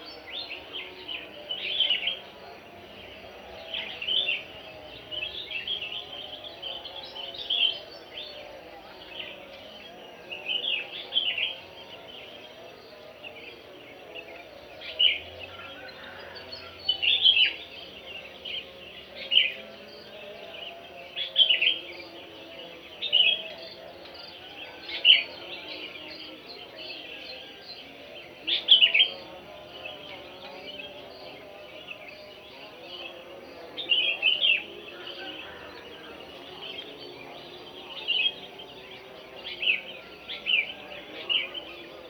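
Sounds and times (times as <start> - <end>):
birds chirping: 10.6 - 42.0.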